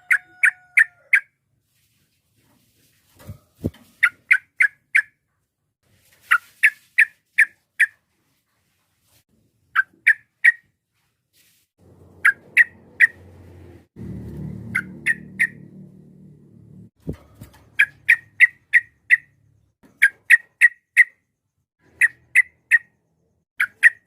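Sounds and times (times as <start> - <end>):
low hum: 11.8 - 17.3
bird calling sharp notes: 12.2 - 13.2, 14.6 - 15.8.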